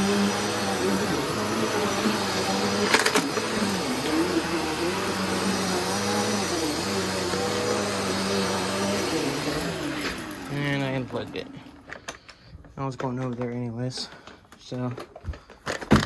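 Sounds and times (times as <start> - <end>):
vacuum cleaner on carpet: 0.0 - 12.2.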